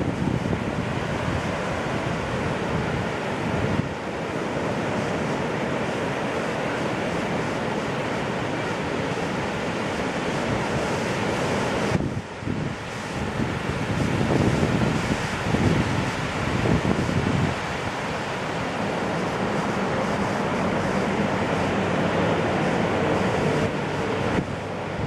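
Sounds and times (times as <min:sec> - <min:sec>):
ocean surf breaking: 0:00.0 - 0:25.0
wind buffeting microphone: 0:00.0 - 0:25.0.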